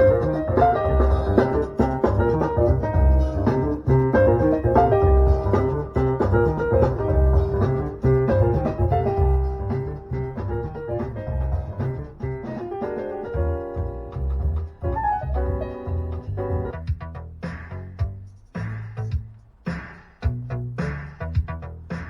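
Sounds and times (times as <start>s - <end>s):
heavy low bass notes: 0.0s - 12.5s
instrumental music with piano: 0.0s - 17.6s.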